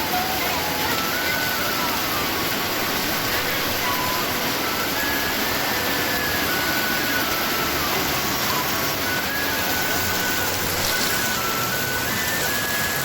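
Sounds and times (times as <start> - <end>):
heavy rain: 0.0 - 13.0
thin melody of held notes: 0.0 - 13.0.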